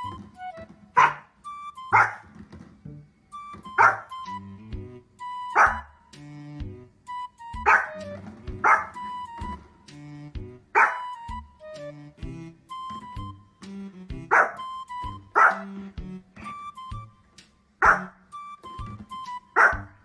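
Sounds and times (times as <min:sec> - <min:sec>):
music playing: 0:00.0 - 0:20.0
small dog barking: 0:01.0 - 0:01.3, 0:01.9 - 0:02.2, 0:03.8 - 0:04.1, 0:05.5 - 0:05.9, 0:07.6 - 0:08.0, 0:08.6 - 0:09.0, 0:10.8 - 0:11.2, 0:14.3 - 0:14.6, 0:15.4 - 0:15.7, 0:17.8 - 0:18.1, 0:19.6 - 0:19.9.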